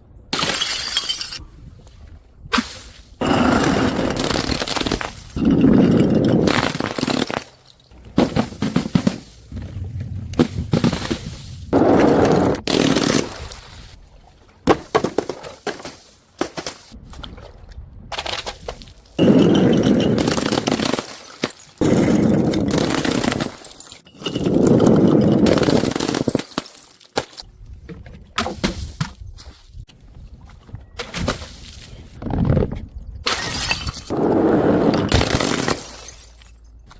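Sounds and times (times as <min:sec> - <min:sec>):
crunching: 0:02.6 - 0:27.5
objects cracking and shattering: 0:03.2 - 0:11.5, 0:18.1 - 0:27.5, 0:35.0 - 0:36.7.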